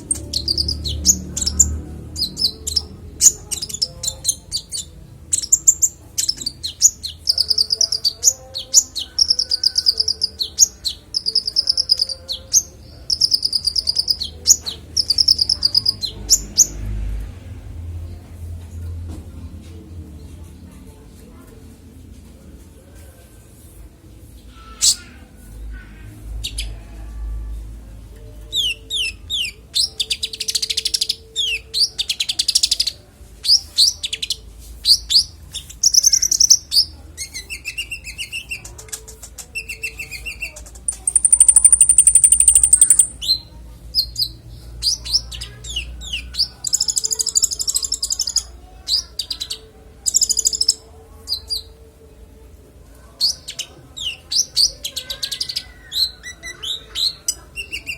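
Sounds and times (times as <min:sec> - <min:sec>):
songbird singing: 0:00.0 - 0:17.2, 0:28.2 - 0:51.8.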